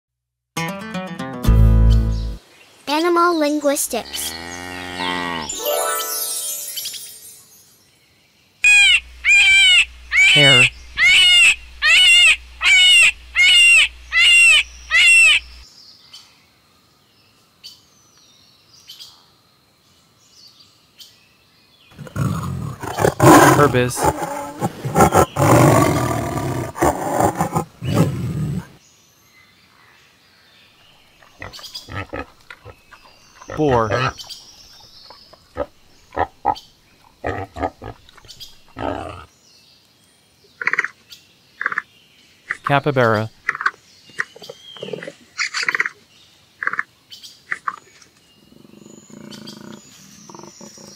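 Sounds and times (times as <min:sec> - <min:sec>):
hare calling with high cries: 0:08.6 - 0:15.6
wild boar grunting: 0:22.0 - 0:28.8, 0:31.2 - 0:34.3, 0:37.2 - 0:39.3, 0:48.5 - 0:50.9.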